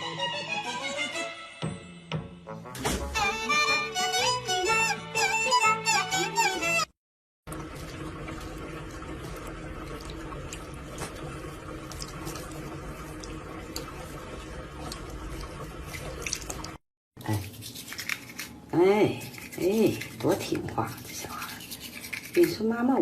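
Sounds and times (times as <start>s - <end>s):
running water: 7.5s - 23.0s.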